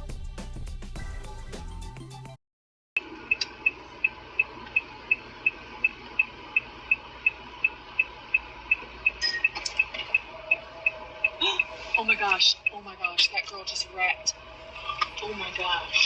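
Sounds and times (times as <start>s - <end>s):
low hum: 3.2s - 16.0s
electronic ticking: 3.3s - 13.4s.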